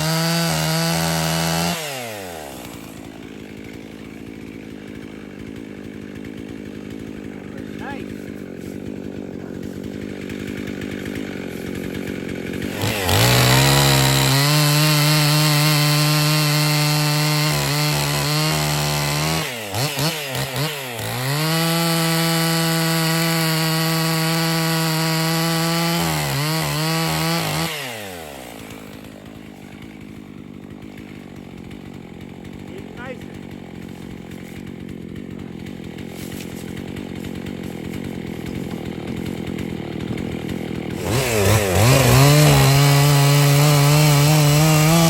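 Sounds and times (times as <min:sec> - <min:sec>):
chainsaw idling and revving: 0:00.0 - 0:45.0.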